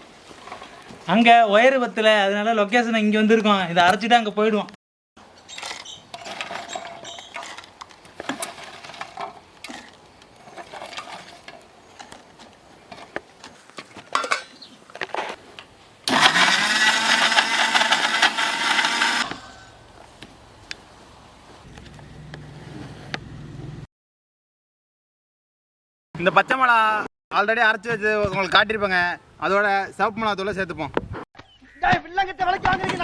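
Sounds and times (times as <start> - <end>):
electric mixer grinder whine: 16.1 - 19.5.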